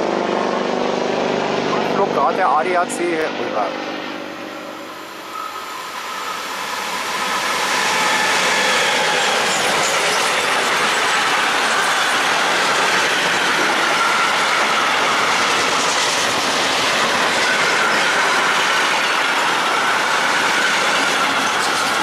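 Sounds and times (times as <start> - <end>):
freight train rolling past: 0.0 - 22.0
wheels clickety-clack on rail: 6.6 - 22.0.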